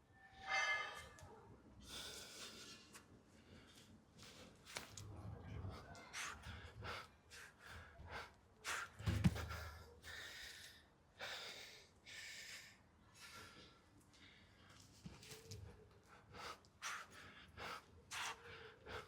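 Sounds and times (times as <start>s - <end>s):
man breathing hard: 6.1s - 14.6s, 16.0s - 19.0s.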